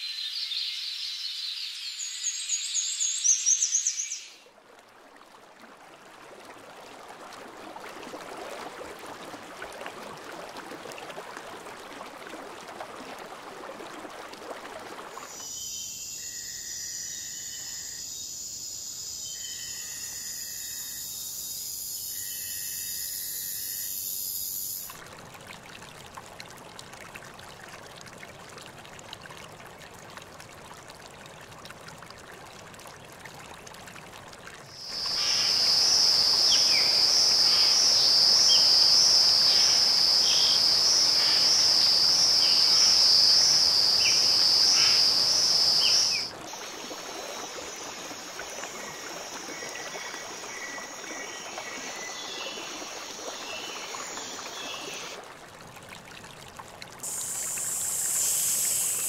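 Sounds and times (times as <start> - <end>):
pulsing insect chorus: 15.3 - 25.0, 34.7 - 55.2, 57.0 - 59.0
short chirping calls: 34.9 - 46.3.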